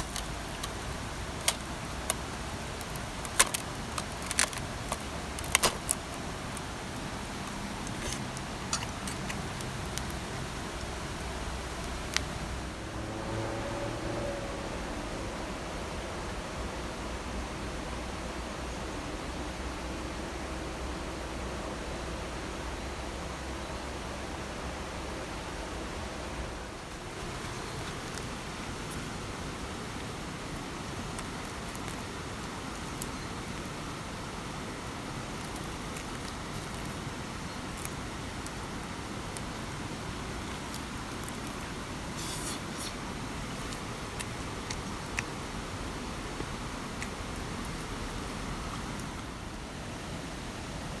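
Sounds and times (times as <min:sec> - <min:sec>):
brief crackle: 0:00.0 - 0:12.4.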